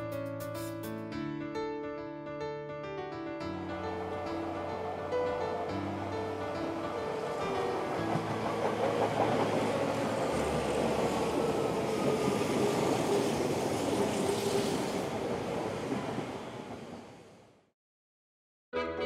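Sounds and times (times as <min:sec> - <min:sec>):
train wheels rushing on rail: 0:04.0 - 0:17.4.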